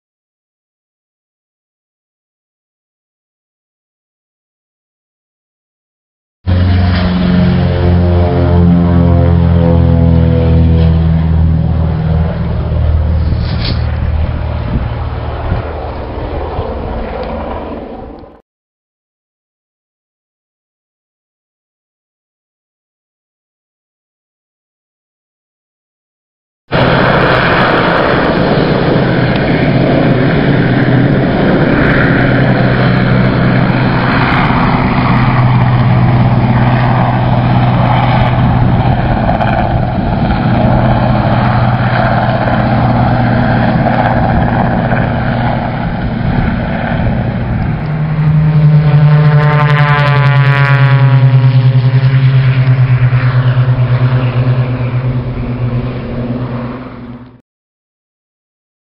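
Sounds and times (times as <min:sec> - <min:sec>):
helicopter engine and rotor drone: 0:06.5 - 0:18.4, 0:26.7 - 0:57.4.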